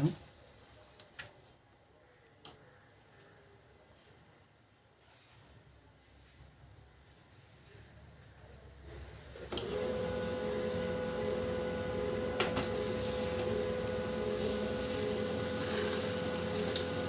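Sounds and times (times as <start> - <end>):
laser printer running: 9.4 - 17.0
printer click: 9.4 - 17.0.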